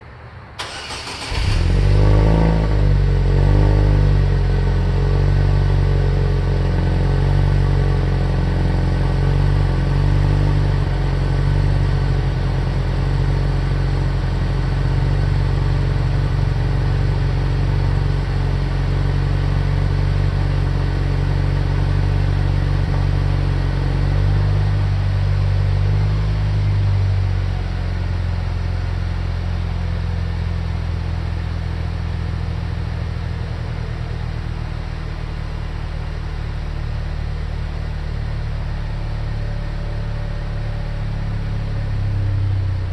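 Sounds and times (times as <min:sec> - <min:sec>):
car engine cold start idling: 0:00.6 - 0:02.1.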